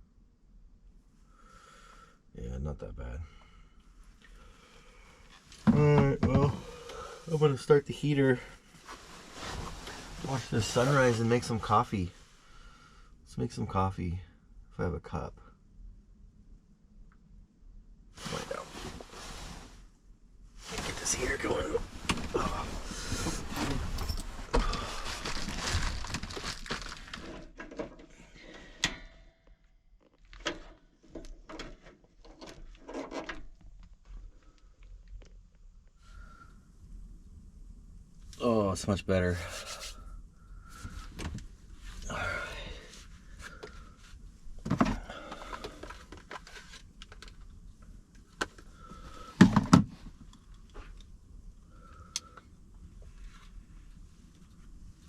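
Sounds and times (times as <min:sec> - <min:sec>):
rustling and shuffling: 0:05.2 - 0:12.4, 0:18.2 - 0:28.7, 0:30.0 - 0:37.6, 0:39.1 - 0:40.1, 0:40.7 - 0:42.1, 0:42.8 - 0:51.9, 0:52.7 - 0:55.0.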